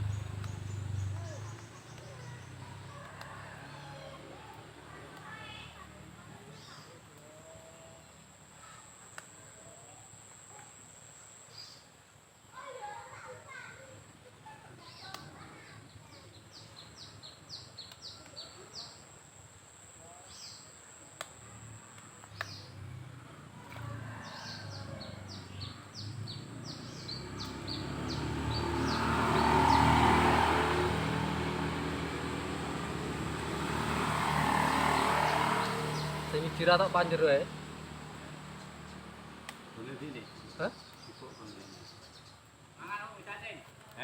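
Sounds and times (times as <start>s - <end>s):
engine passing: 0.0s - 8.1s, 21.5s - 42.3s.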